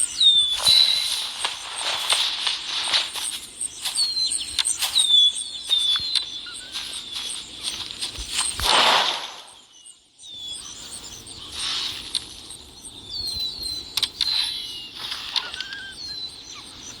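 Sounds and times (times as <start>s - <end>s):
birds chirping: 0.0s - 17.0s
sharp clicks: 0.5s - 9.5s, 13.9s - 15.8s.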